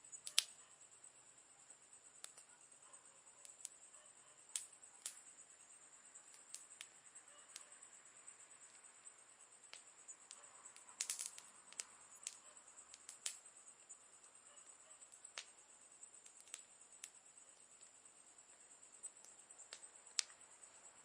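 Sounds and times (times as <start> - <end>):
steady high hiss: 0.0 - 21.0
campfire crackling and popping: 0.2 - 0.6, 2.1 - 2.6, 4.5 - 5.4, 6.2 - 7.6, 9.6 - 20.5.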